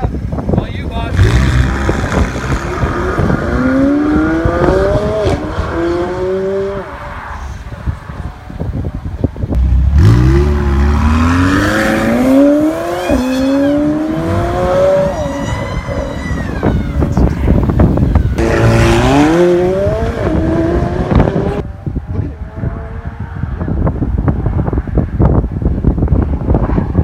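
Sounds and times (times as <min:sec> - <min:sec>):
sports car engine accelerating: 0:18.4 - 0:24.8.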